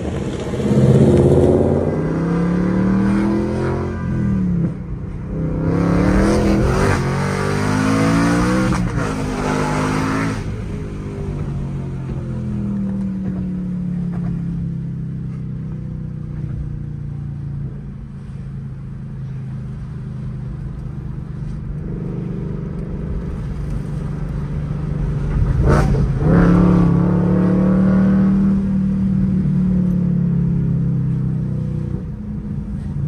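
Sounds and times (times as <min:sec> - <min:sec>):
car engine running: 0:00.0 - 0:07.1, 0:08.4 - 0:26.3.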